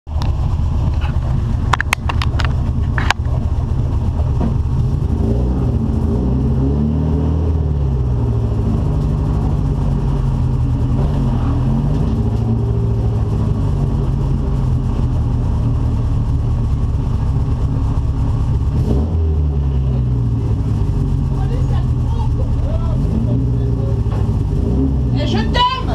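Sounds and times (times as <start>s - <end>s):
car engine revving: 0.1s - 25.9s.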